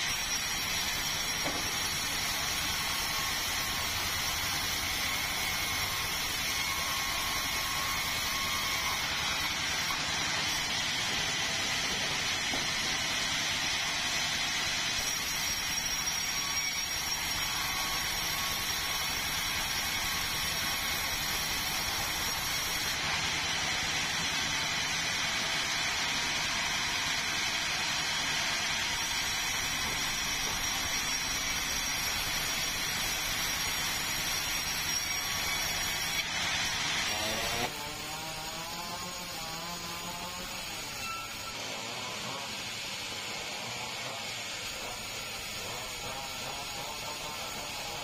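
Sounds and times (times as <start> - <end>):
sawmill saw running: 0.0 - 48.0.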